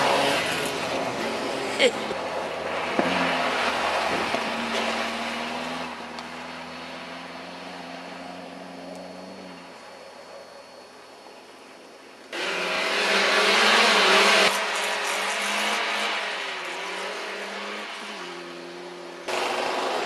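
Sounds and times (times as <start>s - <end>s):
car engines revving: 0.0s - 10.8s, 12.3s - 20.0s.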